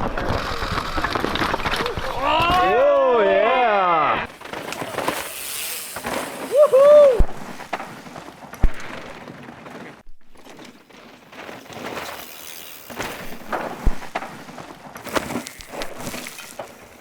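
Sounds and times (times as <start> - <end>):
tyres crunching on loose dirt: 4.1 - 17.0
wheels knocking on rocks: 4.3 - 17.0.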